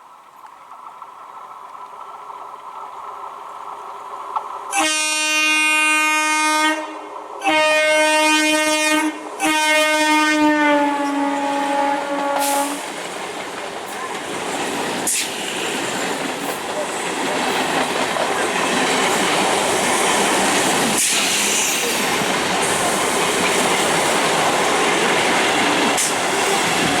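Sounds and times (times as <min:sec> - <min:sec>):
train rumbling: 0:00.0 - 0:27.0
train horn blasts: 0:04.7 - 0:12.9.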